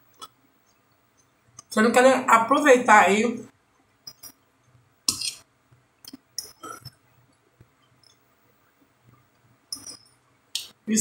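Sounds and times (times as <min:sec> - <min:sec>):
person chewing food: 0:04.0 - 0:08.2.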